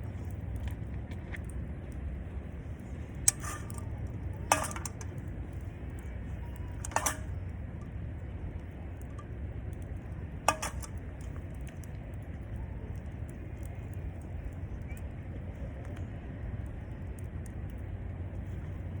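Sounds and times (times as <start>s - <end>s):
steady low rumble: 0.0s - 19.0s
metal utensils clinking: 3.3s - 5.2s, 6.6s - 7.4s, 10.5s - 11.0s.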